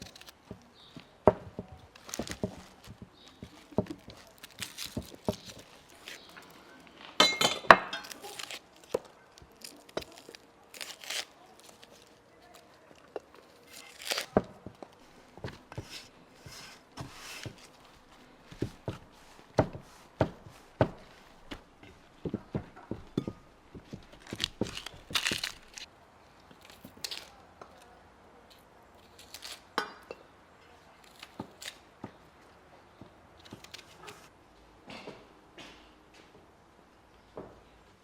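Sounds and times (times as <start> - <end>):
packaging rustling: 1.8 - 6.9, 8.0 - 25.9
utensils and containers clinking: 7.2 - 8.6.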